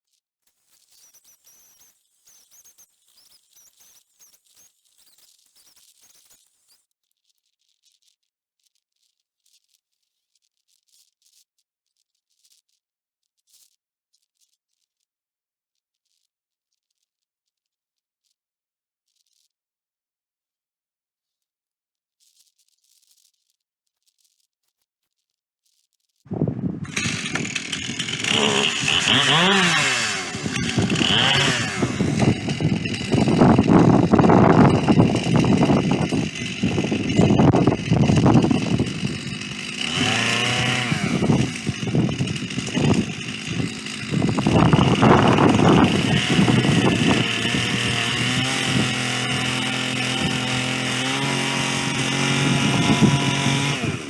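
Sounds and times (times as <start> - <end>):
chainsaw milling a log: 26.3 - 54.0.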